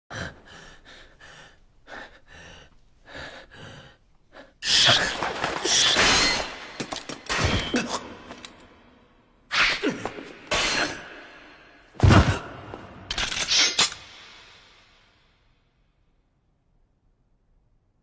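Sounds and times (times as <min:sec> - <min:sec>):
heavy panting breaths: 0:00.1 - 0:04.6.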